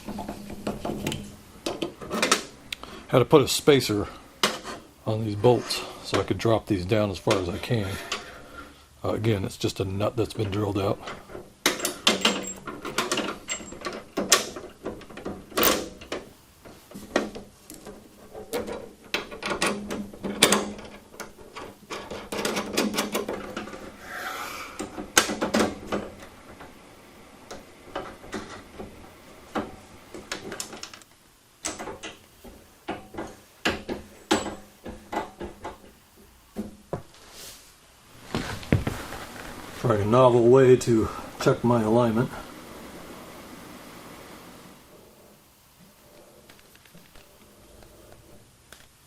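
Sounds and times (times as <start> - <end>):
metal parts and tools clinking: 11.0 - 16.2.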